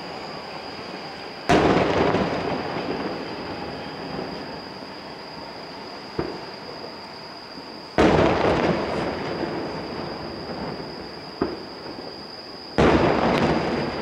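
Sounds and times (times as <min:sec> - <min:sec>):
firework booms echoing: 0:01.5 - 0:04.6, 0:08.0 - 0:12.0, 0:12.8 - 0:14.0.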